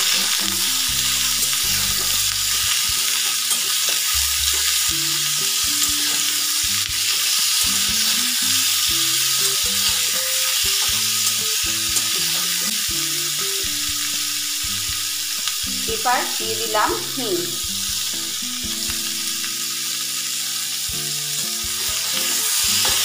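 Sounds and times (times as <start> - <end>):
potatoes frying in hot oil: 0.0 - 23.0
metal spatula scraping and tapping: 10.8 - 12.7.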